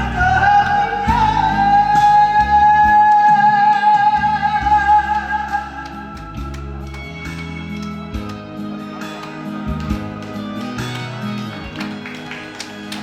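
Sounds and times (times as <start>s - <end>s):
person singing a long high note: 0.0s - 6.8s
pop instrumental accompaniment: 0.0s - 13.0s.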